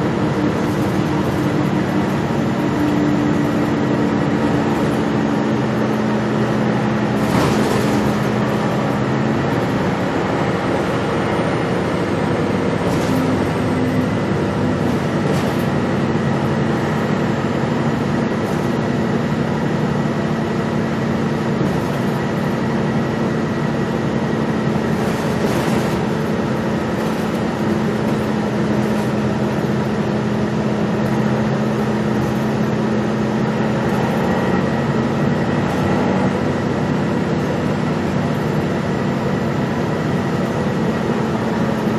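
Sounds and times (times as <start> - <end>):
bus engine hum: 0.0 - 41.9
road noise: 0.0 - 41.9.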